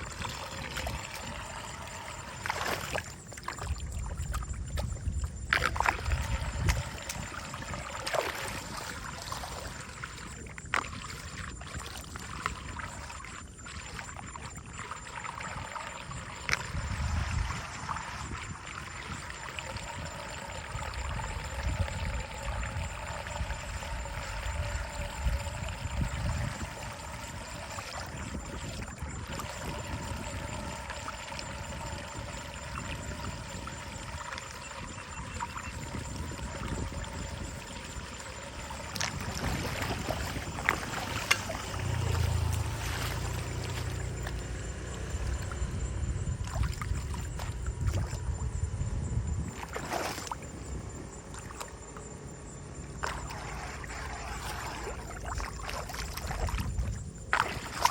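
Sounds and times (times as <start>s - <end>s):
water trickling through drain: 0.0s - 57.9s.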